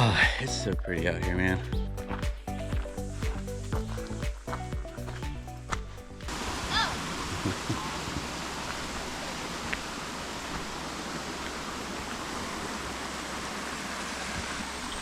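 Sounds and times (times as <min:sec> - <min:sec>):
river water rushing: 0:06.0 - 0:15.0.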